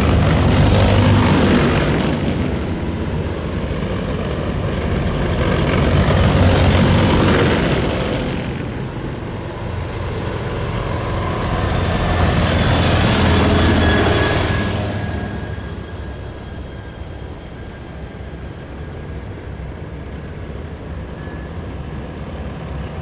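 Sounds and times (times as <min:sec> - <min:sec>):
heavy military vehicles rumbling past: 0:00.0 - 0:17.2.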